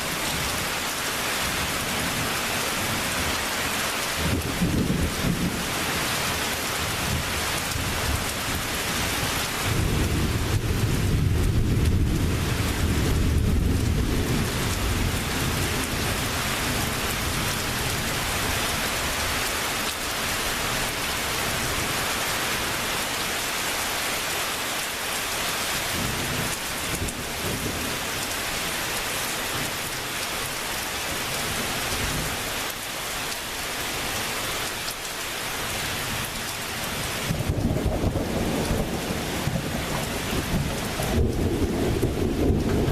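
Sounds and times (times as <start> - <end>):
heavy rain pouring: 0.0 - 42.9
thunder rumbling: 37.2 - 42.9.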